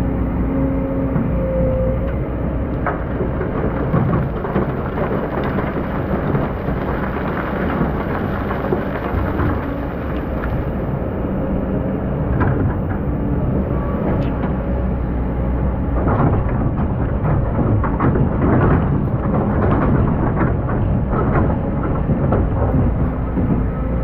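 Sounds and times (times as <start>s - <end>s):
sand and stones rumbling: 2.2s - 13.3s, 13.9s - 24.0s
stones clicking: 3.3s - 10.8s.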